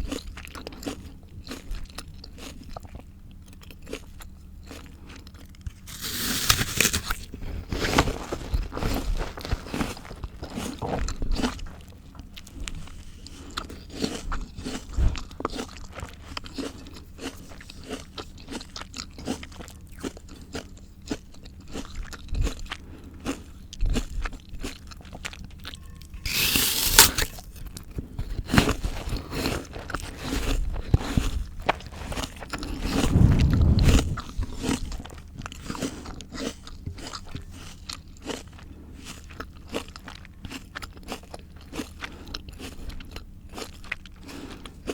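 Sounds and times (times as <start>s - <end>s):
person chewing crisp vegetables: 0.0s - 32.8s, 35.4s - 44.9s
sharp loud bite: 5.9s - 7.2s, 26.3s - 27.5s
low crunch or thump: 32.8s - 34.5s.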